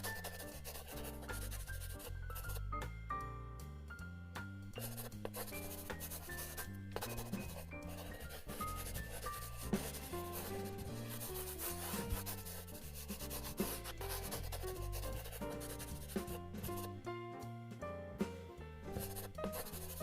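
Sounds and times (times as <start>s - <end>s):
pencil scratching on paper: 0.0s - 2.6s, 4.8s - 17.0s, 19.0s - 20.0s
light background music: 0.0s - 20.0s.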